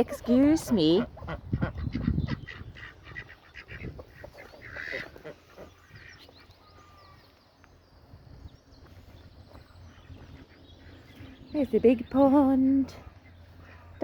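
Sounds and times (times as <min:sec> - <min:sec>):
ducks quacking: 0:00.0 - 0:07.2, 0:12.8 - 0:14.0
faint high bird chirps: 0:05.6 - 0:12.2.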